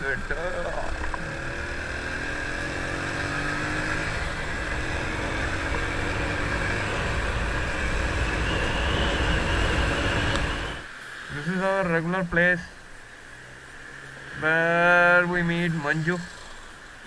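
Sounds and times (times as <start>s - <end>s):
motorcycle engine running: 0.0s - 10.9s
wind rumbling over microphone: 0.0s - 10.9s.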